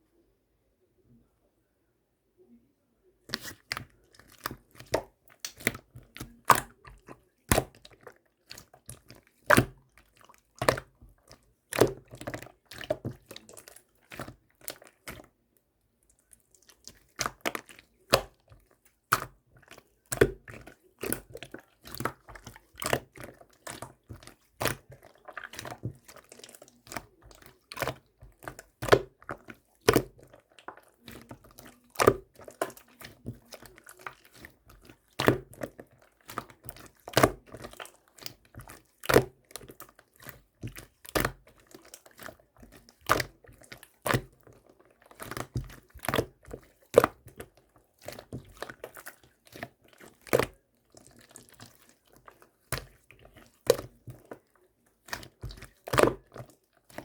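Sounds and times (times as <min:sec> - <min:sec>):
slime popping and crackling: 0:03.3 - 0:07.9, 0:16.7 - 0:18.4, 0:19.1 - 0:54.4, 0:55.0 - 0:57.0.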